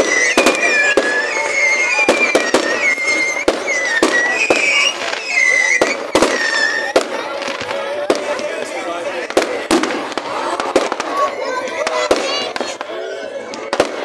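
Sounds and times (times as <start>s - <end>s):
high wavering whistles: 0.0s - 7.0s
fireworks bangs and crackles: 0.0s - 14.0s.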